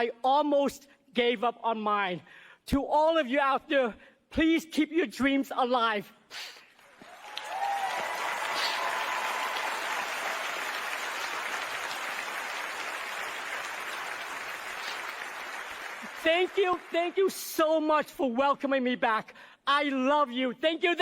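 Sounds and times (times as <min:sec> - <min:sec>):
large audience applauding: 0:06.8 - 0:17.4.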